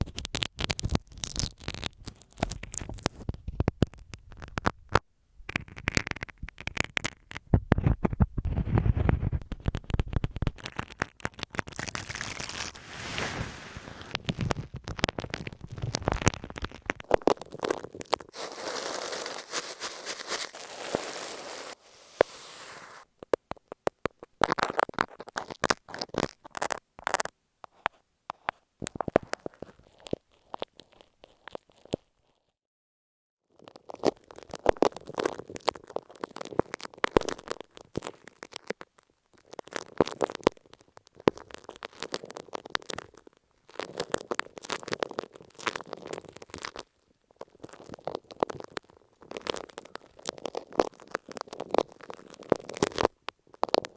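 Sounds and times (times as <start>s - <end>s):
scratching and brushing hiss: 12.5s - 14.2s, 18.4s - 23.0s.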